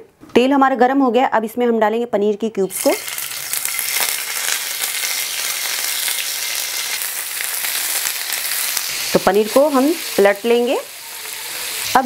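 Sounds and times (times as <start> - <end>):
cheese cubes sizzling in oil: 2.7 - 12.0.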